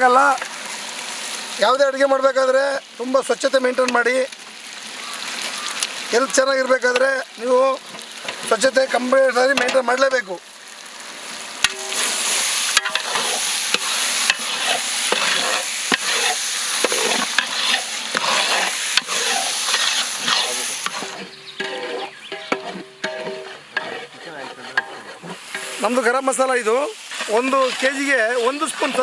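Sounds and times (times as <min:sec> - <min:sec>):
chicken sizzling in hot oil: 0:00.0 - 0:29.0
metal ladle clicking against pot: 0:12.8 - 0:14.6.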